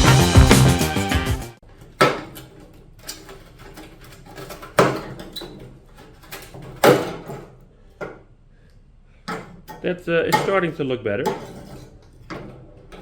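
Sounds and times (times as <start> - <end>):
metal parts and tools clattering: 1.7 - 8.1, 9.2 - 13.0.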